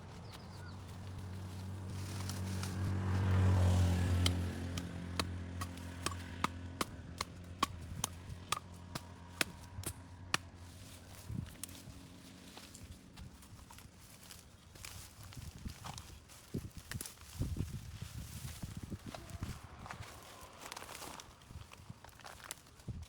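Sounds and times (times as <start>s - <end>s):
vehicle engine passing by: 0.0s - 14.4s, 17.6s - 21.9s
sharp evenly spaced knocks: 4.2s - 10.5s.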